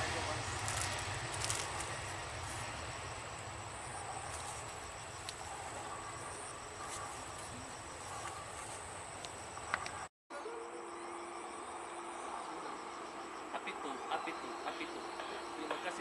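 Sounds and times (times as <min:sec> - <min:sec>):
low aircraft rumble: 0:00.0 - 0:10.1
insects trilling: 0:00.0 - 0:16.0
pulsed insect chirping: 0:00.0 - 0:16.0.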